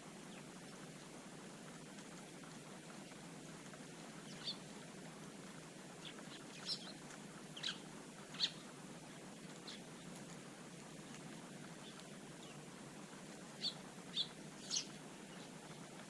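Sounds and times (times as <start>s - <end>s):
faint steady hiss: 0.0s - 16.0s
birds chirping: 4.2s - 4.8s, 5.9s - 8.7s, 9.5s - 10.2s, 13.5s - 16.0s.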